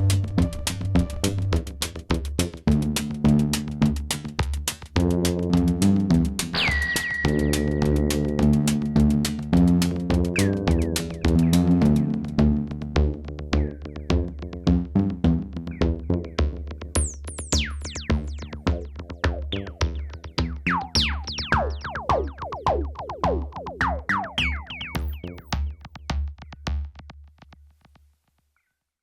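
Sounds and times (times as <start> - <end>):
drum machine beat: 0.1 - 27.1
synthesizer chords and bass: 5.0 - 25.7.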